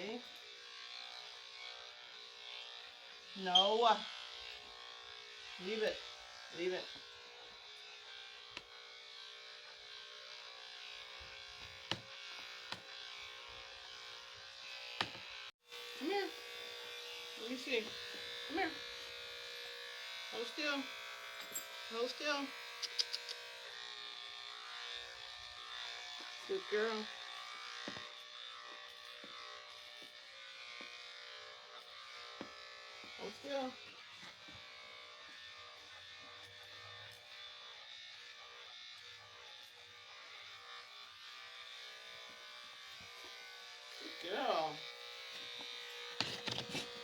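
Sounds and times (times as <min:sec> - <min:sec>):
electric clippers humming: 0:00.0 - 0:47.0
sharp clicks: 0:22.8 - 0:23.4.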